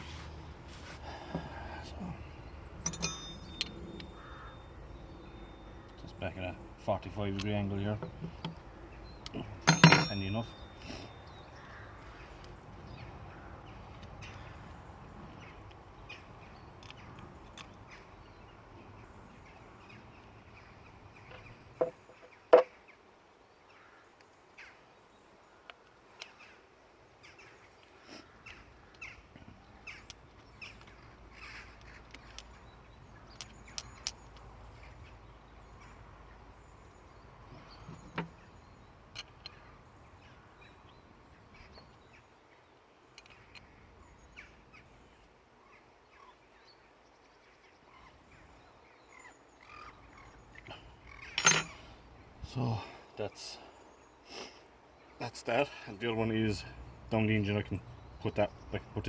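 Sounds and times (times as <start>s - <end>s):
hand tools clicking on metal: 2.8s - 4.3s, 9.2s - 11.0s, 51.3s - 51.8s
crows cawing: 4.1s - 5.0s, 11.6s - 12.3s.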